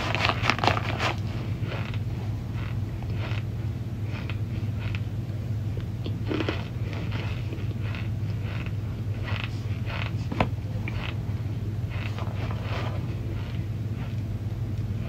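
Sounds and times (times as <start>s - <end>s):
chewing dry cornstarch crunches: 0.0s - 15.0s
steady low hum: 0.0s - 15.0s.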